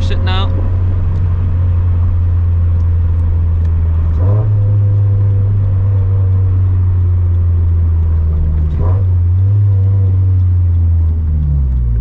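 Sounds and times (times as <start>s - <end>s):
car engine and exhaust droning: 0.0s - 12.0s.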